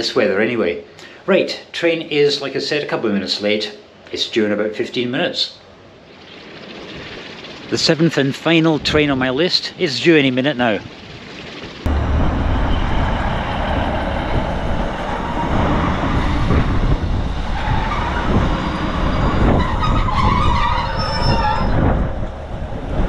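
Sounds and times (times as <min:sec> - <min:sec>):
diesel train engine rumble: 0:11.9 - 0:23.0
wheel and brake squeal: 0:17.5 - 0:22.0.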